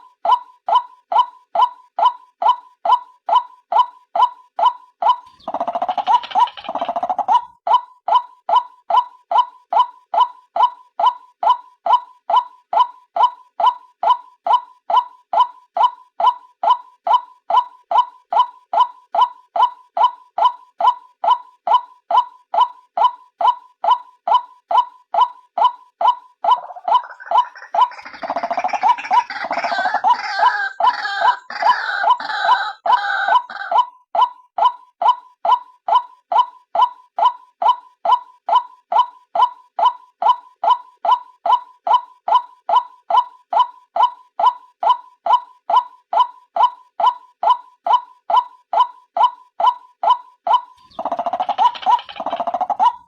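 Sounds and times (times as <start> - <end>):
harsh gurgling bird chatter: 5.3 - 7.4, 26.5 - 33.7, 50.7 - 53.0.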